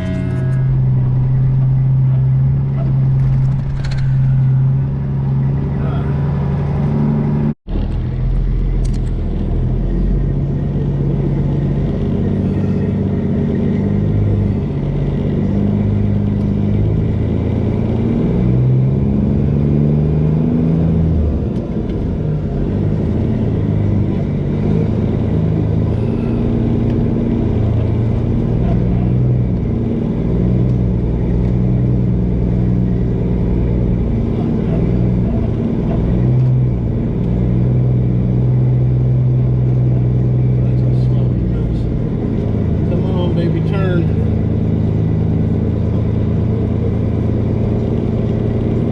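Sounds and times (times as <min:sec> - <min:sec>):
truck diesel engine droning: 0:00.0 - 0:48.9.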